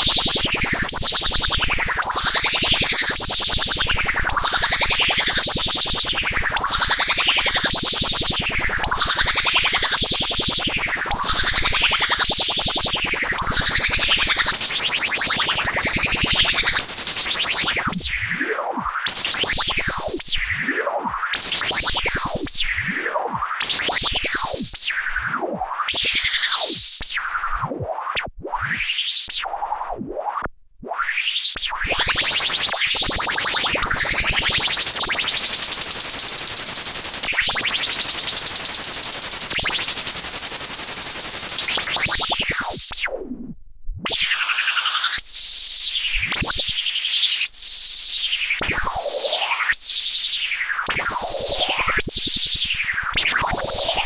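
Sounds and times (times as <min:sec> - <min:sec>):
buzzy synthesizer filter sweeps: 0:32.1 - 0:42.8, 0:50.9 - 0:54.0.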